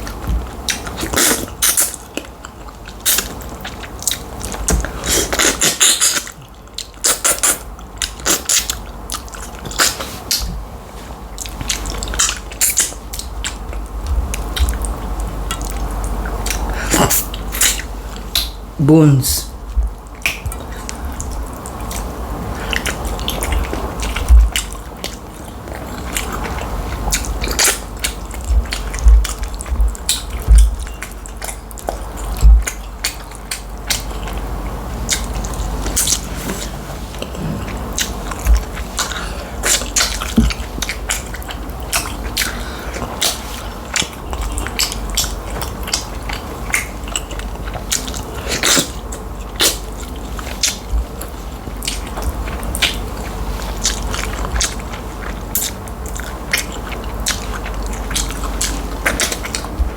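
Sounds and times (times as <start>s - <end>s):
person chewing food: 0.0s - 18.7s, 19.5s - 59.9s
wet clicks and lip smacks: 14.6s - 18.6s.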